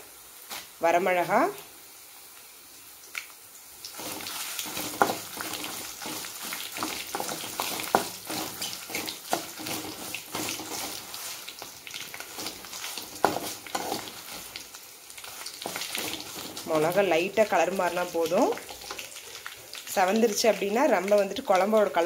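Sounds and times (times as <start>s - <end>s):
chillies sizzling in hot oil: 0.0s - 22.0s
spatula scraping pan: 3.9s - 17.1s.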